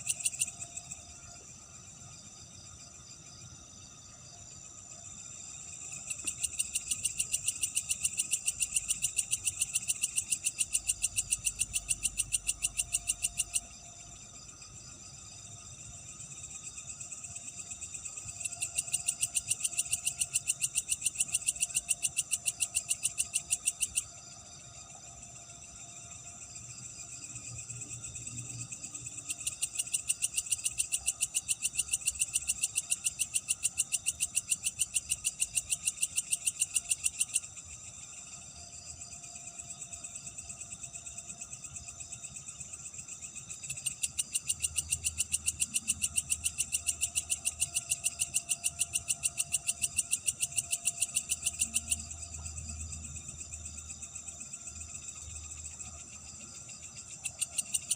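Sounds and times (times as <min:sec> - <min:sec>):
night animal high-pitched pulsing calls: 0:06.0 - 0:13.7, 0:17.9 - 0:24.1, 0:29.2 - 0:38.0, 0:43.6 - 0:52.6, 0:55.6 - 0:57.9.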